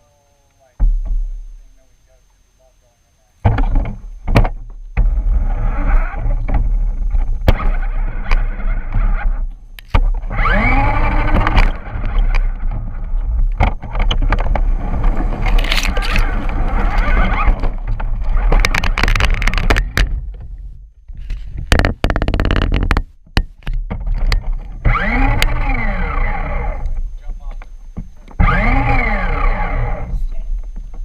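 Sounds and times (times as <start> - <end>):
chassis rumble and rattling: 3.5 - 31.0
toy truck motor whine: 5.1 - 6.5, 7.5 - 13.1, 14.1 - 19.7, 24.7 - 27.0, 28.2 - 30.2.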